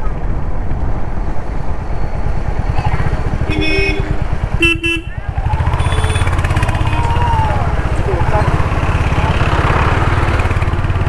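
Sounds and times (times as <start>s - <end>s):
motorcycle engine running: 0.3s - 11.0s
vehicle horn honks: 3.5s - 10.2s.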